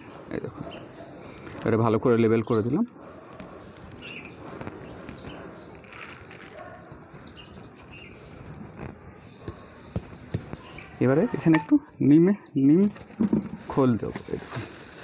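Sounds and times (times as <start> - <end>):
birds chirping: 0.0 - 14.3.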